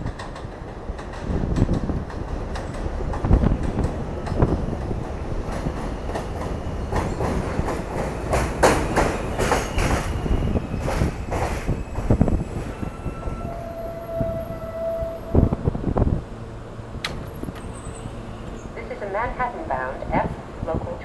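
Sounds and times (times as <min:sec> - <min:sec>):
wheels clacking over rail joints: 0:00.0 - 0:12.8, 0:16.9 - 0:19.0
subway train rumbling: 0:00.0 - 0:21.0.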